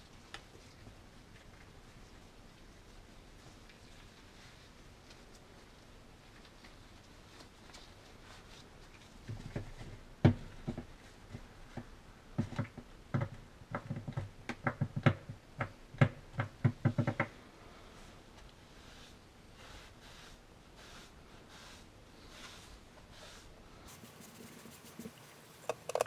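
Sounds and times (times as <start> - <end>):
gun parts knocking and clicking: 25.6 - 26.0.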